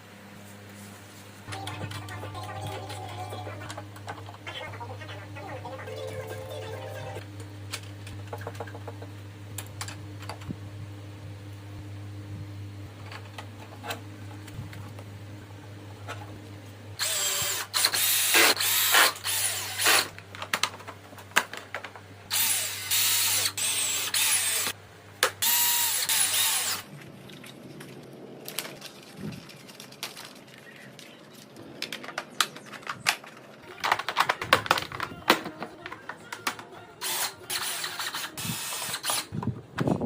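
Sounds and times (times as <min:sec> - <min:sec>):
electric drill running: 0:17.0 - 0:20.2, 0:22.3 - 0:24.8, 0:25.4 - 0:26.9, 0:37.0 - 0:39.4.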